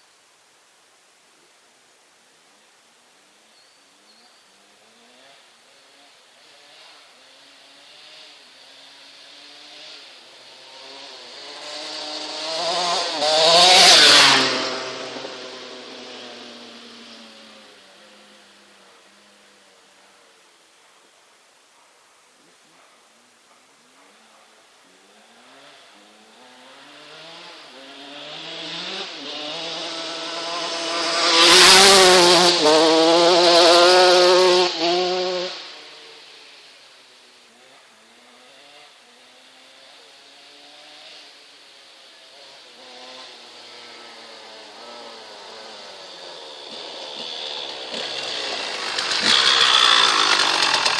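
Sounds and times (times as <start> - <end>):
motocross bike passing by: 4.7 - 19.6, 25.1 - 50.9.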